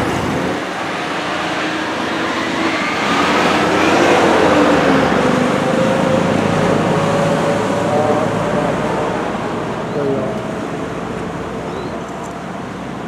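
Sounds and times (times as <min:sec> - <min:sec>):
motor vehicle engine passing: 0:00.0 - 0:13.0.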